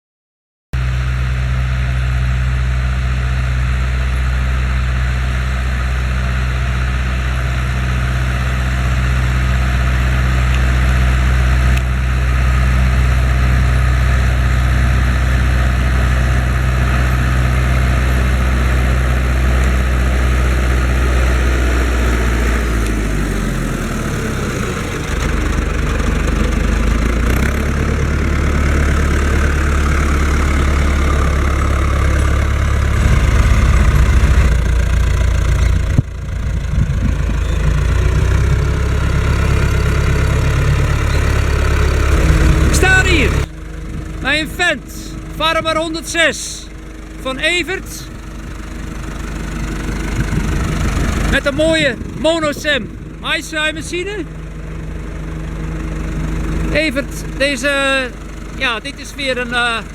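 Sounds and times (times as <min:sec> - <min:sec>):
tractor engine running: 0:00.8 - 0:59.9.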